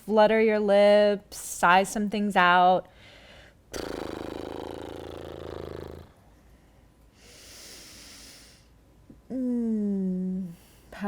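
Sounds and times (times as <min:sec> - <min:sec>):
woman fluttering her lips: 0:03.7 - 0:06.2.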